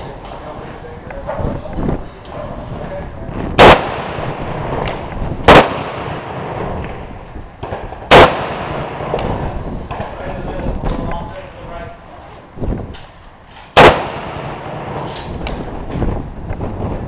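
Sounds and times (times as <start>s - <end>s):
loud rifle shots: 3.6s - 6.9s, 7.6s - 9.6s, 13.7s - 15.7s.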